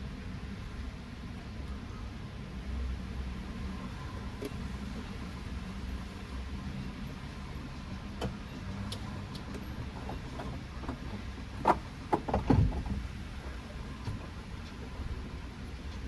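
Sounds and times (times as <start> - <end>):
car rumble: 8.5 - 15.6.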